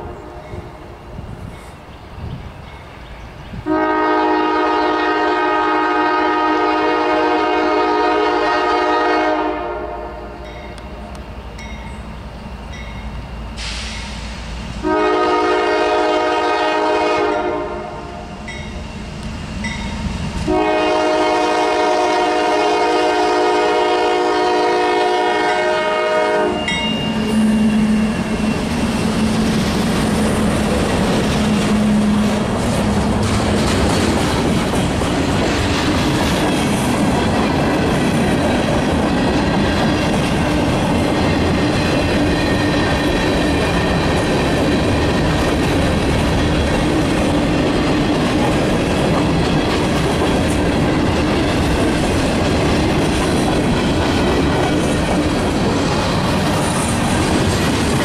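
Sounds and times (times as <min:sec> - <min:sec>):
locomotive air horn: 0:03.7 - 0:10.5, 0:14.8 - 0:18.4, 0:20.5 - 0:28.5
freight cars clattering on rail: 0:26.7 - 0:58.0.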